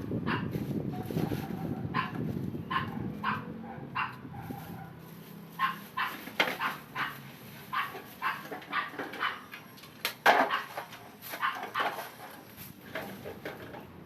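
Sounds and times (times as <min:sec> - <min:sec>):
dog barking: 0:00.3 - 0:00.5, 0:01.2 - 0:05.0, 0:05.6 - 0:09.5, 0:10.4 - 0:10.8.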